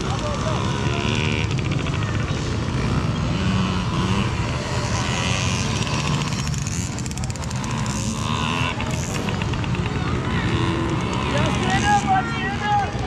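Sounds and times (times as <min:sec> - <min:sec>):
small motorbike engines revving: 0:00.0 - 0:13.0.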